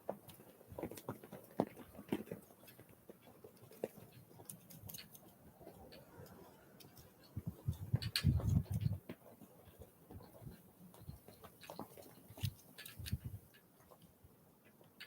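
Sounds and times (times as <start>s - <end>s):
birds pecking and hopping: 0.0s - 15.0s.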